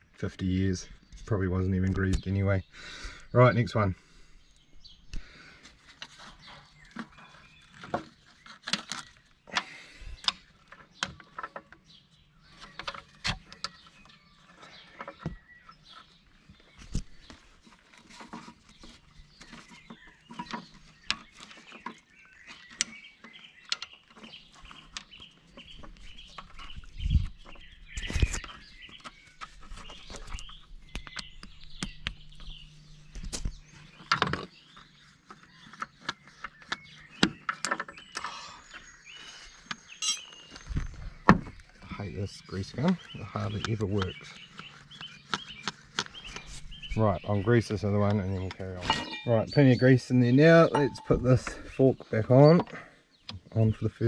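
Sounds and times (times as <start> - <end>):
birds calling: 0.0 - 54.0.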